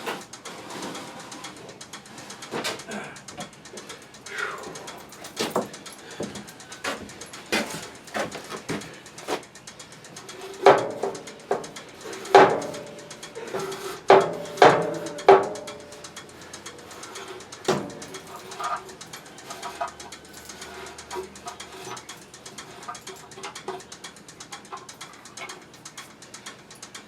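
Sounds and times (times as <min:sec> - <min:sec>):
tool knocking on metal: 0:04.6 - 0:09.4, 0:10.3 - 0:18.8.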